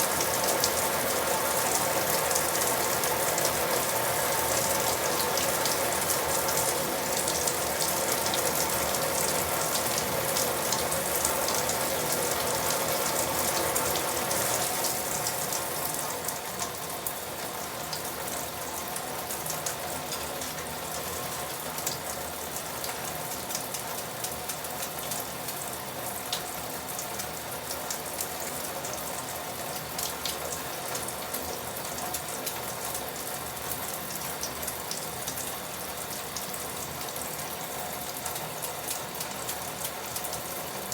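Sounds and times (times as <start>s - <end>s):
tap water running: 0.0s - 40.9s.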